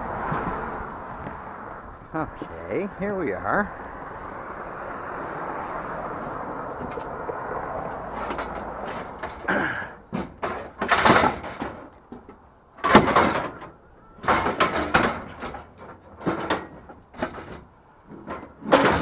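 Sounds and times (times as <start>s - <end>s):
scrap scraping and rattling: 6.8s - 19.0s.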